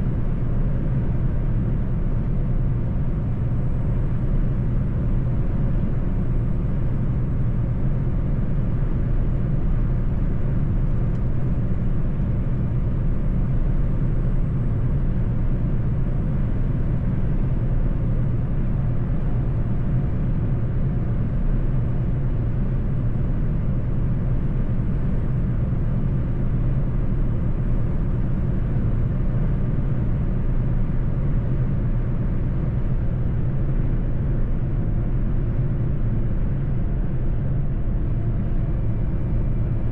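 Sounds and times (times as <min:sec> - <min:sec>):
truck engine drone: 0:24.2 - 0:39.9
road rumble: 0:31.0 - 0:39.9.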